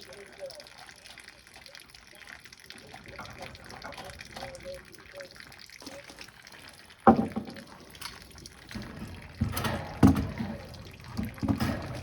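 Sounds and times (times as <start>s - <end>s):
liquid sloshing and trickling: 0.0s - 12.0s
sharp knocks on metal fittings: 7.1s - 12.0s.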